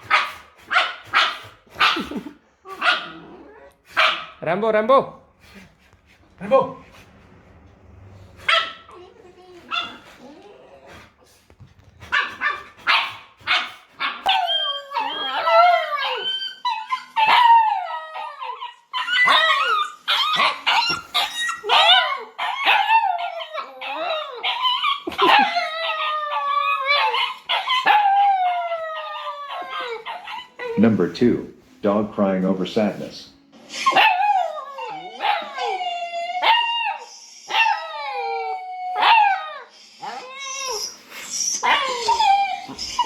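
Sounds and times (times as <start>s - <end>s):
dog barking: 0.0s - 3.2s, 3.9s - 4.4s, 8.4s - 8.9s, 9.7s - 10.0s, 12.1s - 14.4s
dog howling and whining: 7.9s - 11.2s, 14.0s - 30.8s, 33.8s - 43.0s.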